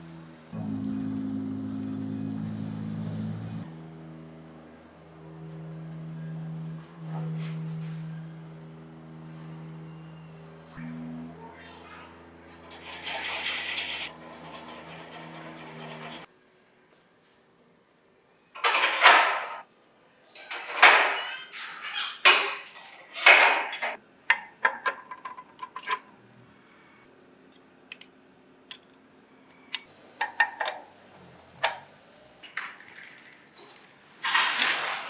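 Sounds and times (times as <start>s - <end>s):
metal parts clanking and scraping: 12.5s - 16.3s, 18.6s - 19.6s, 20.3s - 26.1s, 27.9s - 28.1s, 28.7s - 31.0s.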